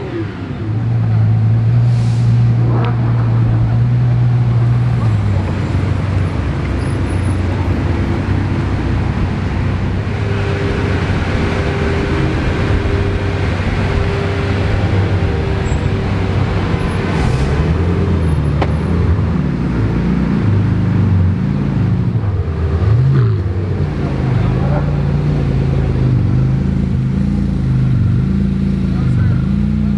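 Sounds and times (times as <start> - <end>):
supercar engines running: 0.0 - 29.9
traffic noise: 0.0 - 29.9
steady higher tone: 8.6 - 18.4.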